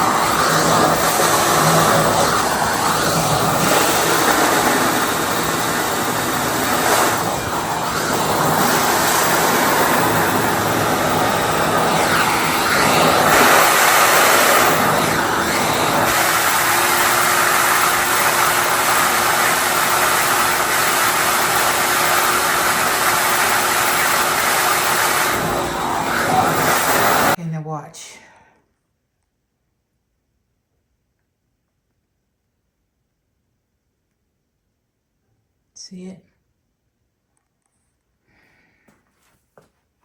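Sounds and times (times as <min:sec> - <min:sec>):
shop vacuum sucking water: 0:00.0 - 0:27.4.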